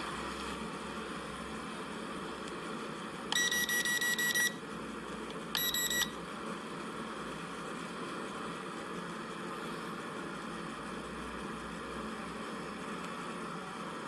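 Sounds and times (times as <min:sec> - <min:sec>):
rapid high electronic beeps: 0:03.4 - 0:04.6, 0:05.6 - 0:06.1.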